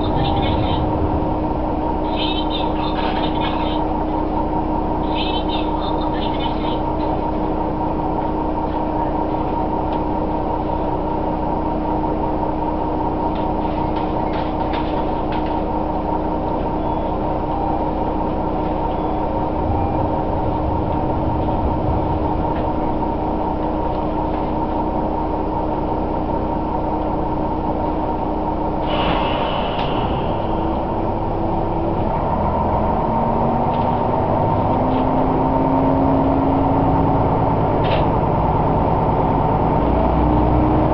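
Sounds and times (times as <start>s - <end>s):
constant whine: 0.0s - 40.9s
railcar engine drone: 0.0s - 40.9s
brief hiss: 28.8s - 30.2s.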